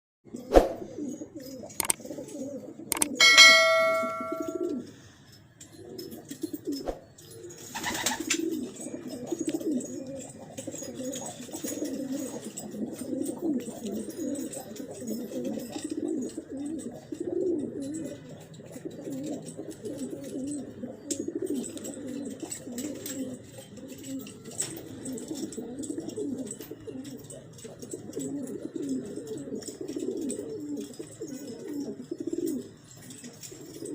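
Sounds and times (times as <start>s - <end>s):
pigeons cooing: 0.3s - 33.9s
metallic ring: 3.0s - 4.8s.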